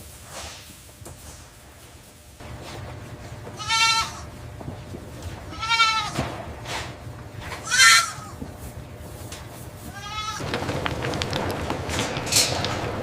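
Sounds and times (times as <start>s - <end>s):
goats bleating: 3.5s - 4.4s, 5.4s - 6.2s, 7.6s - 8.4s, 9.9s - 10.4s.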